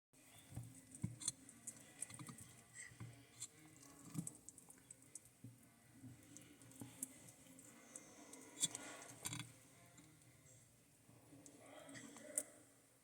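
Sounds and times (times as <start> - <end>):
tortoise chewing meat: 0.3 - 10.2.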